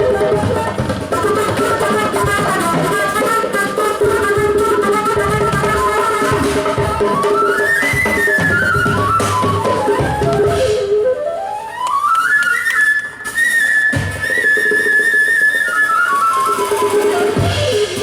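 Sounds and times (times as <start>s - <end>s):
drum hits: 0.0s - 10.8s
live band fast high melody: 0.0s - 18.0s.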